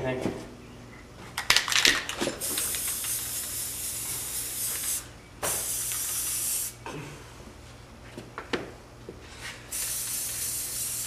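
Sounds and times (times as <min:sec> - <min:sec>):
spray can hissing: 0:02.4 - 0:06.8, 0:09.7 - 0:11.0.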